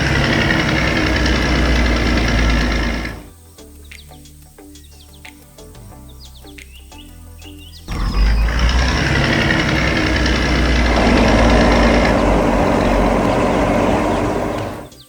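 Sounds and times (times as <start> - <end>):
heavy vehicle engine rumbling: 0.0 - 3.3, 7.9 - 15.0.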